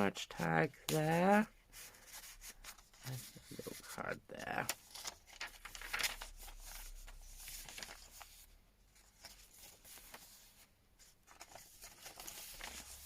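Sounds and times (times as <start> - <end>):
paper pages rustling: 0.3 - 13.0.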